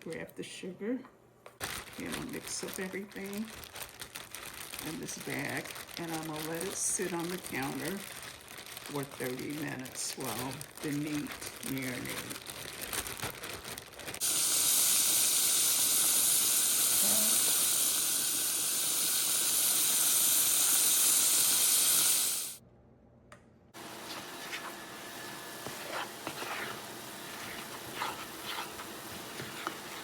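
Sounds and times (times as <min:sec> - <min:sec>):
steak sizzling in hot oil: 0:14.2 - 0:22.6, 0:24.2 - 0:30.0.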